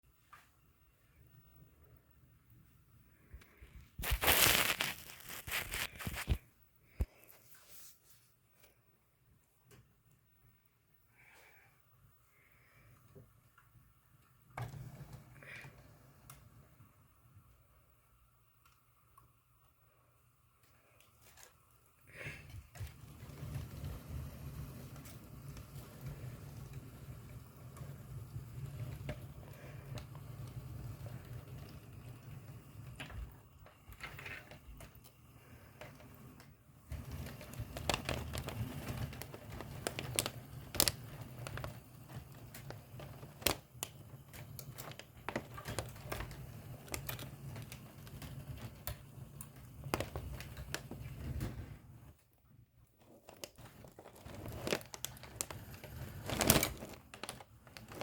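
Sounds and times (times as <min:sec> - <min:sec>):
wheels clicking on track: 0:22.9 - 0:33.4.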